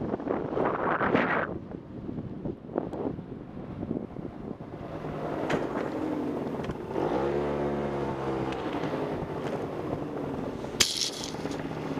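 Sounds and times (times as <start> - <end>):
wind noise: 0.0 - 7.0
vehicle engine revving: 4.8 - 11.9.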